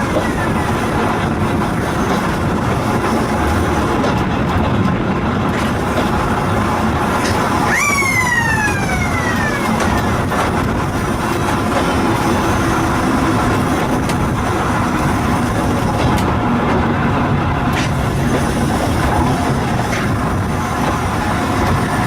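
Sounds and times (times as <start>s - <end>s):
vehicle running noise: 0.0s - 22.0s
high tone rising and sliding down: 7.7s - 10.4s.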